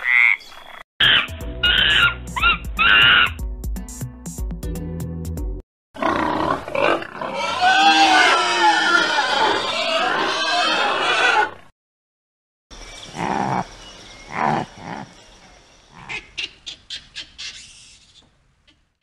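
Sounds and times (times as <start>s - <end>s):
overlapping wavering animal calls: 1.0s - 3.4s.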